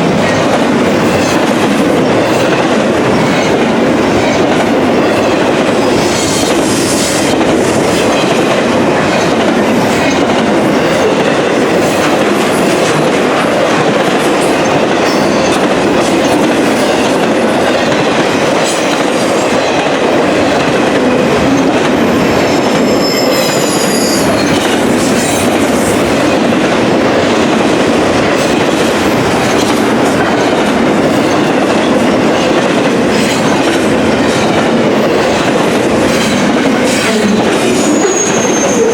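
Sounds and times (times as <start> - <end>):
wheels clacking over rail joints: 0.0 - 22.9, 23.5 - 38.9
freight train cars rumbling past: 0.0 - 38.9
train wheels squealing: 21.6 - 25.4, 37.0 - 38.9.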